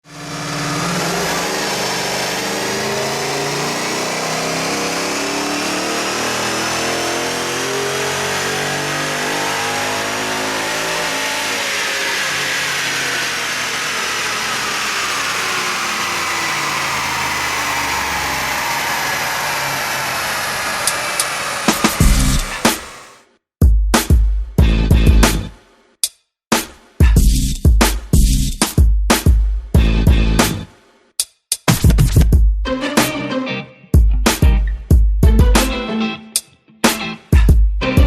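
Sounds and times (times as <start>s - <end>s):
supercharged car engine revving: 0.0s - 23.2s.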